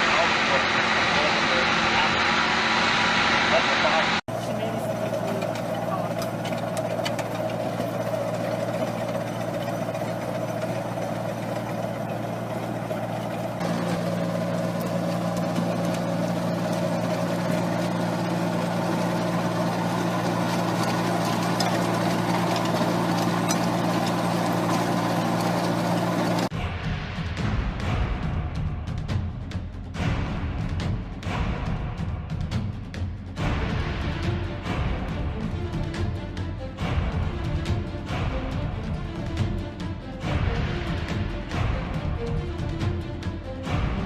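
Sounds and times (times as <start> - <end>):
heavy machine engine hum: 0.0 - 26.5.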